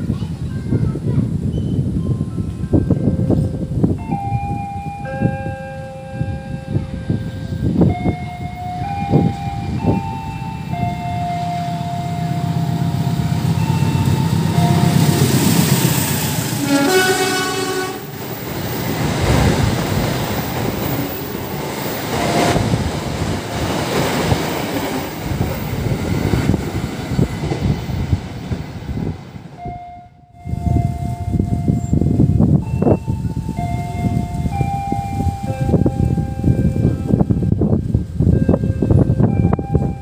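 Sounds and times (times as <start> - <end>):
train wheels rattling on rails: 0.1 - 29.8, 30.5 - 40.0
train horn: 11.2 - 18.2.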